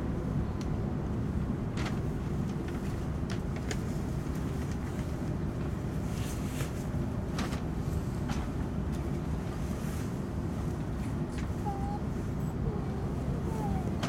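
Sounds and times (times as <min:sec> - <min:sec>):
train cabin low rumble: 0:00.0 - 0:14.0.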